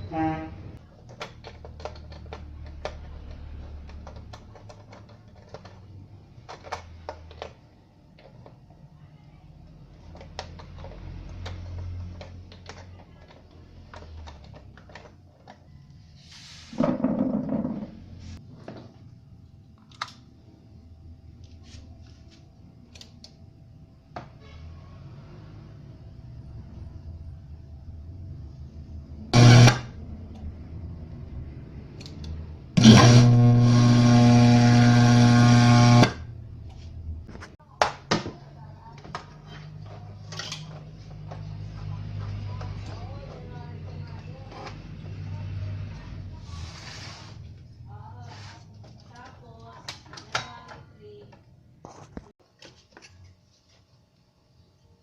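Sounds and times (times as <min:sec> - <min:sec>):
amplifier mains hum: 0:29.1 - 0:30.0, 0:32.6 - 0:37.4.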